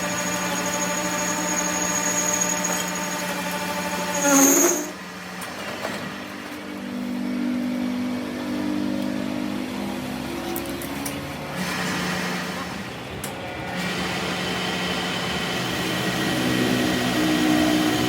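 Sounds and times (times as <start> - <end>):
workshop machine motor humming: 0.0 - 5.4.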